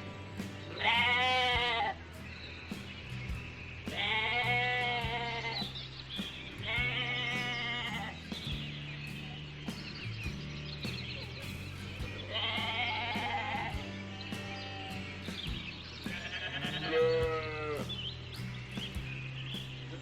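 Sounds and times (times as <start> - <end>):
background music with low notes: 0.0 - 20.0
sheep or goat bleating: 0.7 - 2.0, 3.9 - 5.6, 6.6 - 8.2, 12.3 - 13.9, 16.1 - 17.9.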